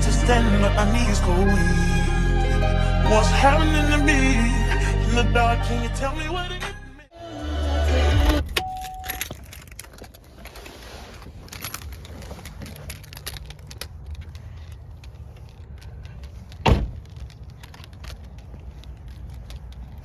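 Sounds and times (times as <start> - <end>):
car engine rumbling: 7.6 - 20.0
light clicks and rattles: 8.6 - 20.0
loud thump: 16.6 - 17.0.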